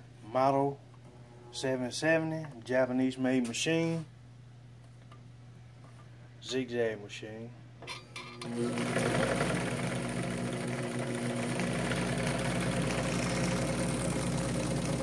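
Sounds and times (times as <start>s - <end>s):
sewing machine sewing: 8.3s - 15.0s.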